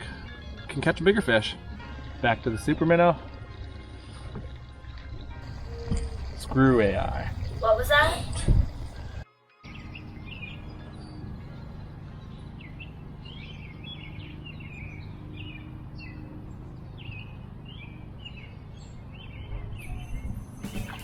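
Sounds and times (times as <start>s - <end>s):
small birds chirping: 7.3s - 21.0s.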